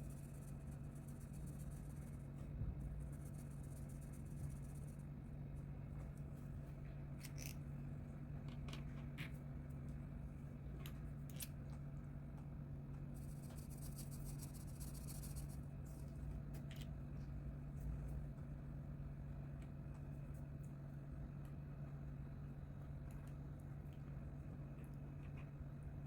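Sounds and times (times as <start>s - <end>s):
low electrical hum: 0.0s - 26.0s
colouring tool scratching on paper: 13.2s - 15.6s.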